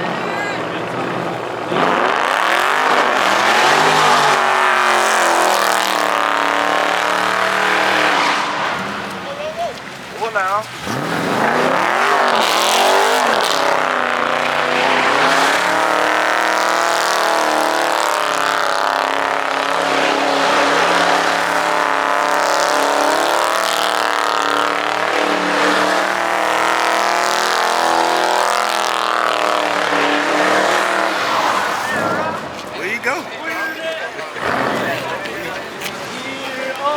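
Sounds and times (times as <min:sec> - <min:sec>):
car engine at high revs: 0:00.0 - 0:09.2, 0:10.0 - 0:33.2, 0:34.3 - 0:36.2.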